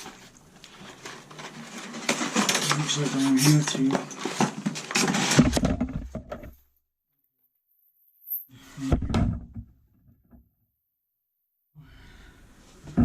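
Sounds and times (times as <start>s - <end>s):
hard objects clunking and rattling: 0.8s - 6.7s.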